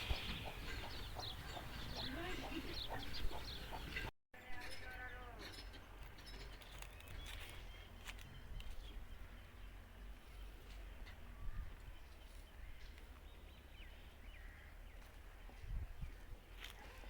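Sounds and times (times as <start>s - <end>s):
bird chirps: 0.0s - 4.1s.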